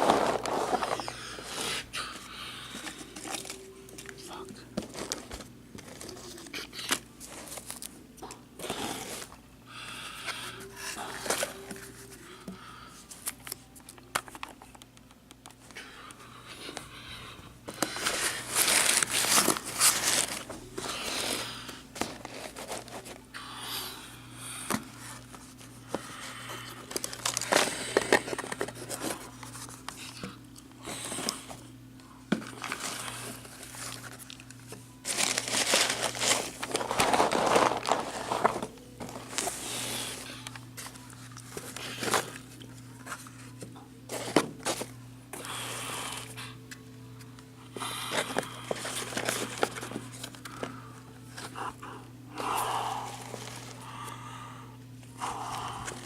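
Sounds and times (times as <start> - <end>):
packaging crinkling and rustling: 0.0 - 1.7, 2.8 - 9.4, 17.7 - 23.2, 26.8 - 30.2, 32.4 - 44.9, 48.1 - 51.6
faint steady hum: 0.0 - 56.0.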